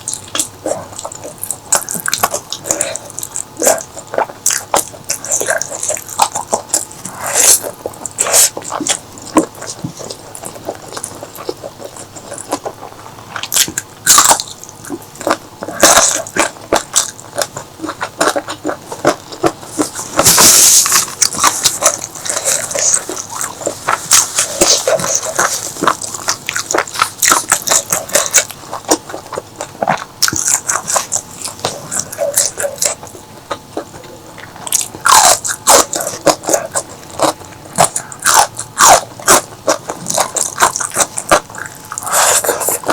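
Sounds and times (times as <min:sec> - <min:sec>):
person chewing food: 0:00.0 - 0:42.9.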